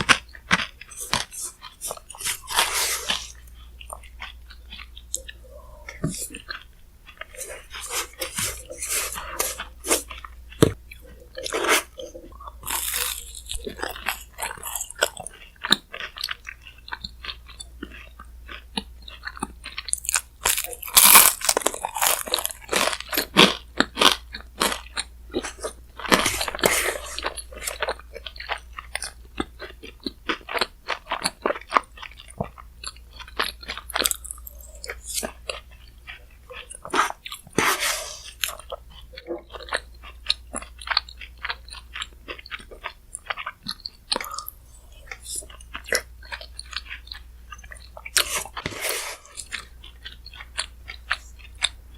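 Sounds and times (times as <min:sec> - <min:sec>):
chewing and crunching ice: 0:00.0 - 0:51.9.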